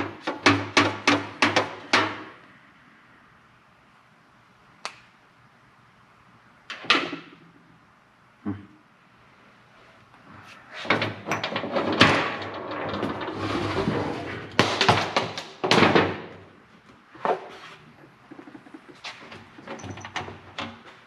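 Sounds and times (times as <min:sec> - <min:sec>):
knocks and rattling: 0:00.0 - 0:02.4, 0:10.8 - 0:16.5.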